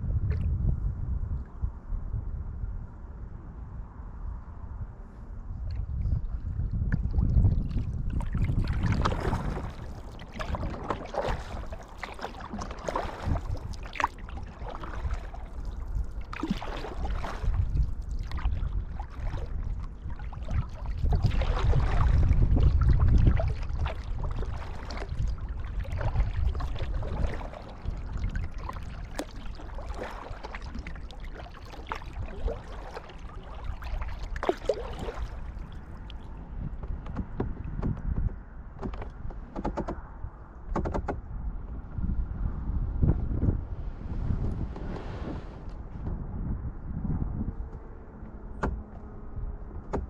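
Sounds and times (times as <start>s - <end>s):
water lapping against hull: 5.6s - 46.3s
paddle strokes splashing: 7.4s - 36.5s, 43.7s - 46.0s
low rumble: 40.0s - 49.9s.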